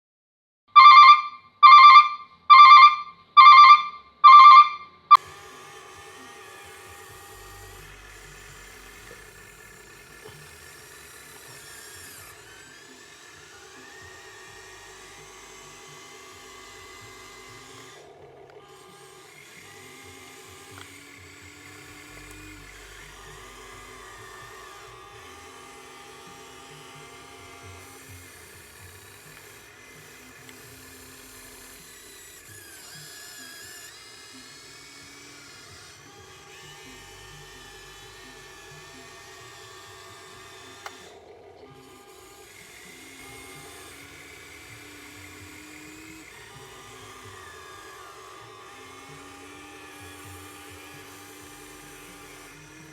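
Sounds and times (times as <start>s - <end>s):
electronic beeps: 0.8s - 5.2s
electric motors whining: 0.8s - 52.9s.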